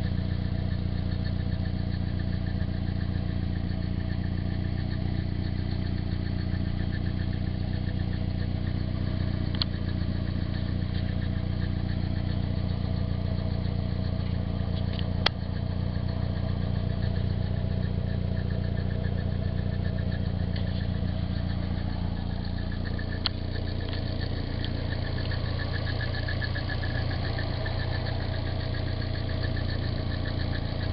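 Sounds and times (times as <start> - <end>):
car engine idling with rattle: 0.0 - 30.9
sharp clicks: 9.4 - 10.0, 14.7 - 15.6, 22.2 - 25.7.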